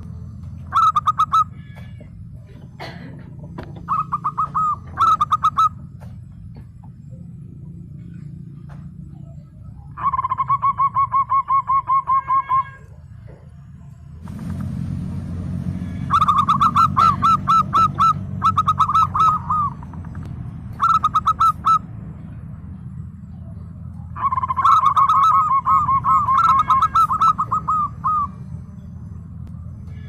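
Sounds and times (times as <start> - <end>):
dove cooing: 0.0 - 6.6, 9.2 - 13.4, 15.9 - 21.9, 23.3 - 28.7
low steady hum: 0.0 - 30.0.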